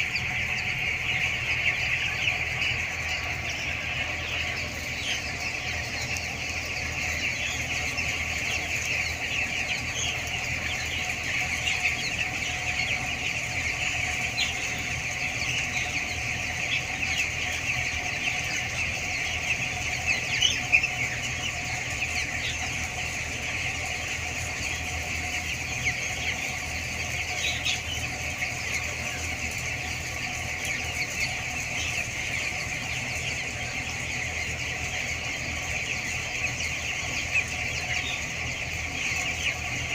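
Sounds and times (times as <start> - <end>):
chicks chirping: 0.0 - 39.9
steady low hum: 0.0 - 39.9.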